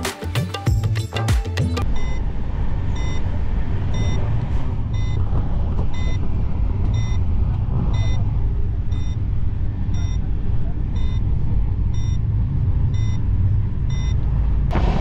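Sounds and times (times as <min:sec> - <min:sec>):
train interior rumble: 0:01.9 - 0:15.0.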